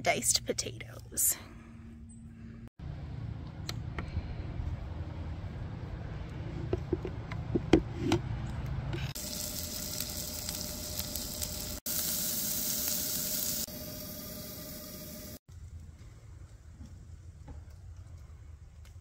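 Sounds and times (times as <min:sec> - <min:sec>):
potatoes sizzling in butter: 0:09.1 - 0:15.4.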